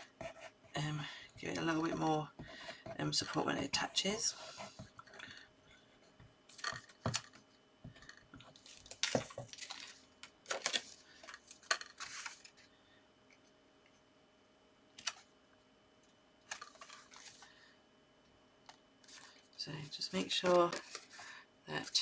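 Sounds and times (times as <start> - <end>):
paper rustling: 8.4 - 12.6, 16.5 - 17.6, 20.4 - 22.0.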